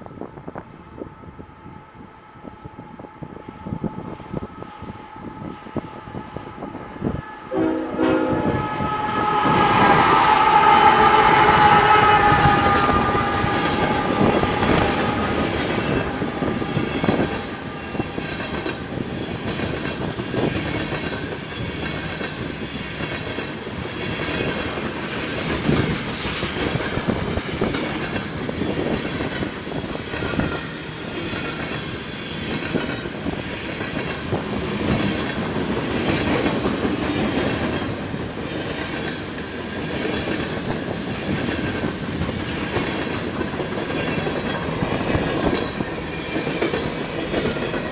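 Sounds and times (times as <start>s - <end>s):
locomotive horn: 6.7s - 19.1s.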